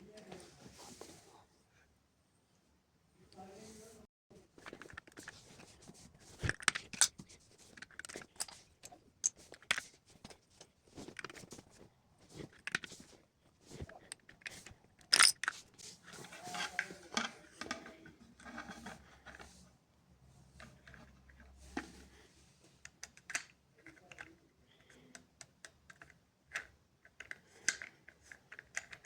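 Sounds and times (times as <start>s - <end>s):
plastic bricks clicking and rattling: 13.8s - 15.6s.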